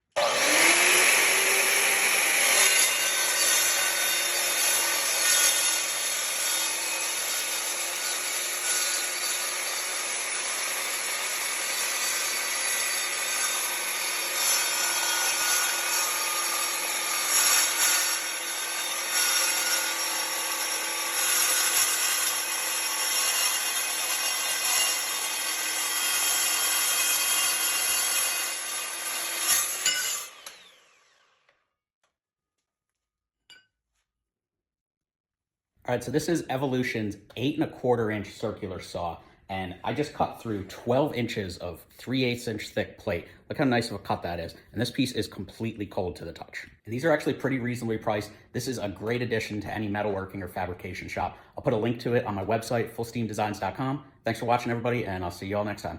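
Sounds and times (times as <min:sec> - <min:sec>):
circular saw cutting steel: 0:00.1 - 0:31.5.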